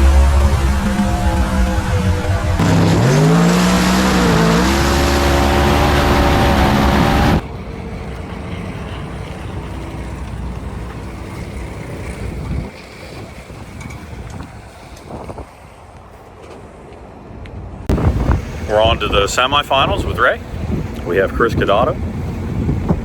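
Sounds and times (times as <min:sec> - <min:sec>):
drag racing engine at full throttle: 0:00.0 - 0:15.4
wind noise on microphone: 0:11.3 - 0:16.1, 0:17.9 - 0:23.0.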